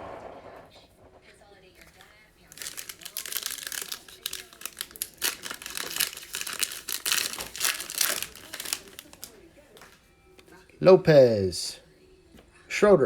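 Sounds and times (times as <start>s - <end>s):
plastic wrapper tearing and crinkling: 1.8s - 10.0s.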